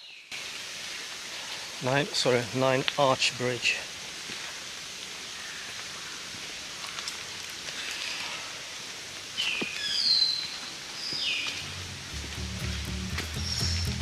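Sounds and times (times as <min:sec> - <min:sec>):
steady soft hiss: 0:00.1 - 0:09.8
birds whistling: 0:09.4 - 0:11.6, 0:13.3 - 0:14.0.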